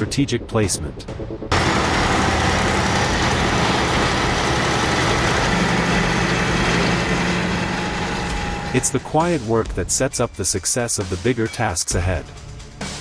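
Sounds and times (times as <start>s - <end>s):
diesel engine running: 1.5s - 9.5s.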